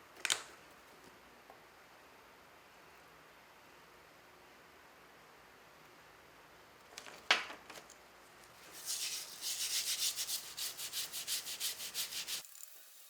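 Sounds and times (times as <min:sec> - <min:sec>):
abrasive rubbing strokes: 0:08.6 - 0:13.0.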